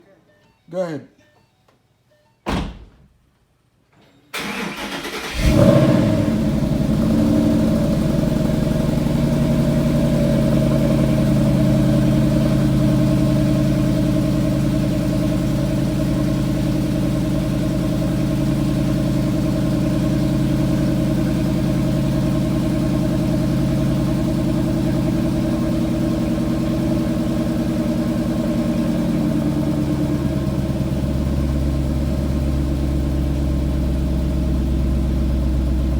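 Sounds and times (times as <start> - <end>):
starter motor cranking: 4.4 - 5.8
car engine idling: 4.4 - 35.9.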